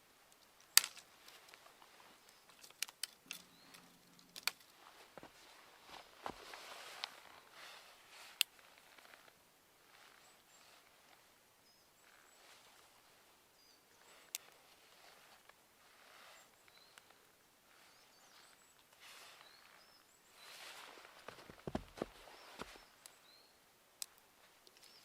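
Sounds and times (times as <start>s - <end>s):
small bird chirps: 3.3s - 4.4s, 16.0s - 24.1s, 24.7s - 25.0s.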